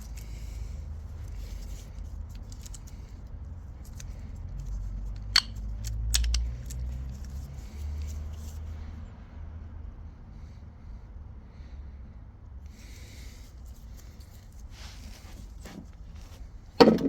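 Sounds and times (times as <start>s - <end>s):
metal parts clicking and scraping: 1.2s - 3.2s, 3.8s - 8.6s.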